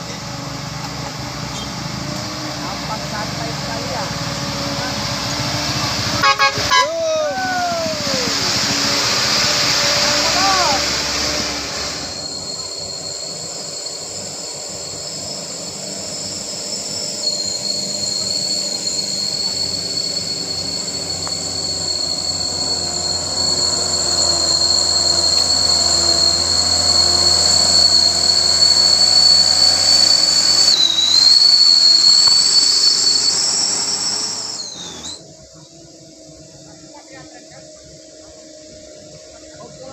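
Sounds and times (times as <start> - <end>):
heavy truck engine under load: 0.0 - 6.7
high-pitched whistle: 1.5 - 39.9.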